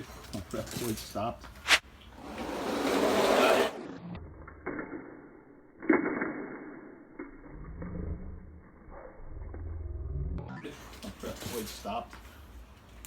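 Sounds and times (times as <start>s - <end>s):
toy truck wheels rolling: 2.1s - 4.0s.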